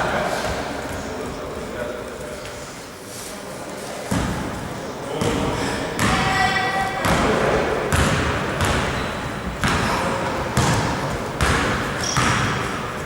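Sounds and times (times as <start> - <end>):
basketball bouncing on a court: 6.0 - 13.0.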